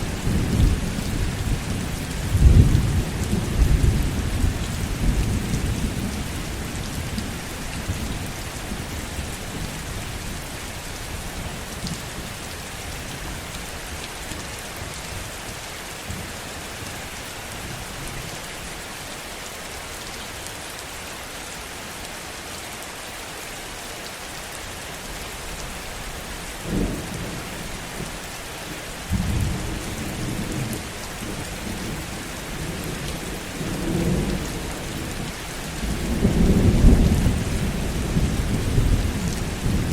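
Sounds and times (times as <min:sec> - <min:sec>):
low thunder rumbling: 0:00.0 - 0:10.4, 0:29.1 - 0:39.9
heavy rain: 0:00.0 - 0:39.9.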